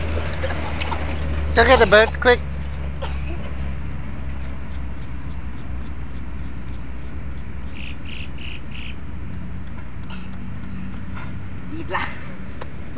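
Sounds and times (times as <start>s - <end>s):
short high bird calls: 7.7s - 9.0s.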